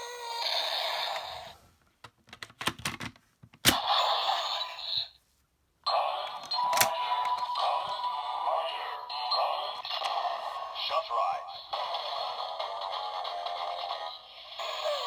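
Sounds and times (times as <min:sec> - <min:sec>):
tinny electronic toy sound effects: 0:05.9 - 0:15.0.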